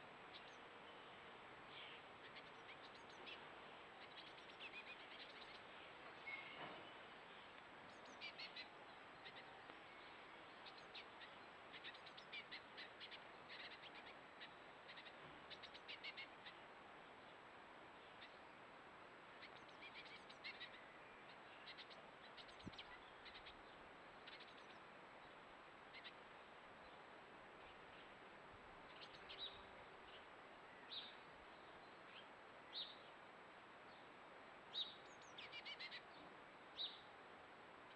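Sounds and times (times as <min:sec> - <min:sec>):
small birds chirping: 0:00.0 - 0:17.4, 0:19.3 - 0:28.2, 0:28.8 - 0:37.1
steady background hiss: 0:00.0 - 0:37.9.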